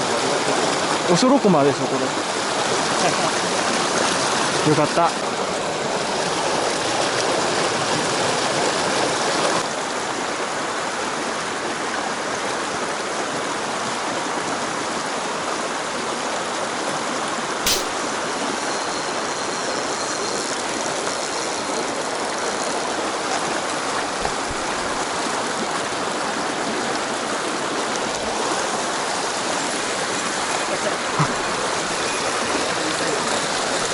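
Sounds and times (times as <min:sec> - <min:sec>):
stream rushing over rocks: 0:00.0 - 0:18.6, 0:20.6 - 0:33.9
sharp click: 0:17.7 - 0:18.0.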